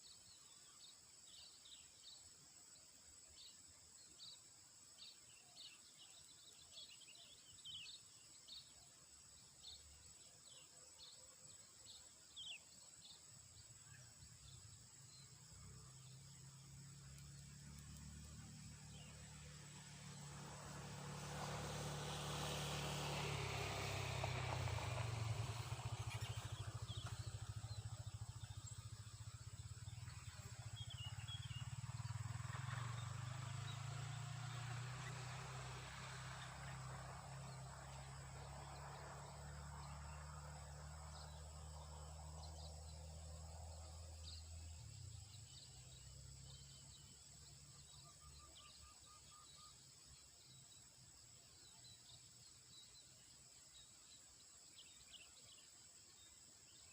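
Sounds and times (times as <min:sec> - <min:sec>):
insects: 0:00.0 - 0:56.9
bird chirps: 0:09.6 - 0:56.9
distant motor engine hum: 0:12.4 - 0:50.9.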